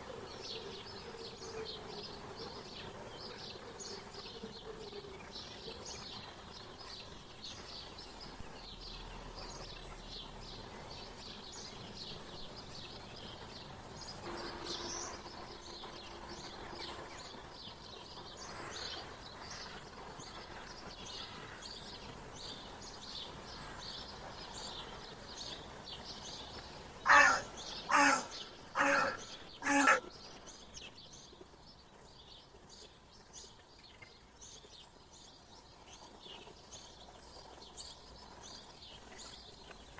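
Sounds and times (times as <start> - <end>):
birds chirping: 0.0 - 39.9
loud harsh bird calls: 13.7 - 20.0, 26.8 - 30.7.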